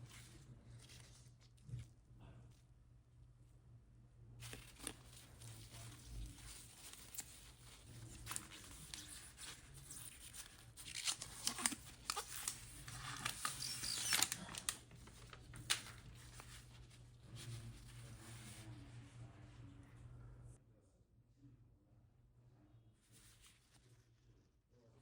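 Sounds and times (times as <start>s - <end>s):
faint low hum: 0.0s - 25.0s
packaging crinkling and tearing: 4.4s - 16.8s.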